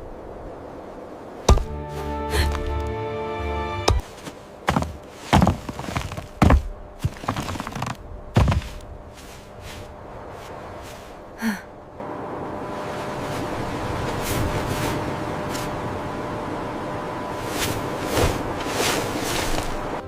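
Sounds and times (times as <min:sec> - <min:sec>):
sustained musical chord: 0:01.5 - 0:04.0, 0:12.0 - 0:14.0
heavy thunks: 0:03.9 - 0:08.8.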